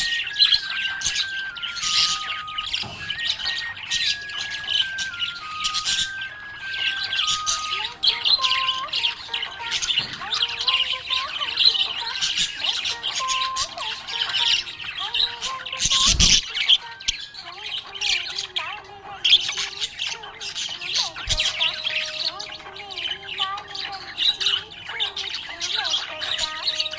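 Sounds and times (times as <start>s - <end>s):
budgerigar chirping: 0.0s - 26.9s
soft background melody: 0.0s - 26.9s.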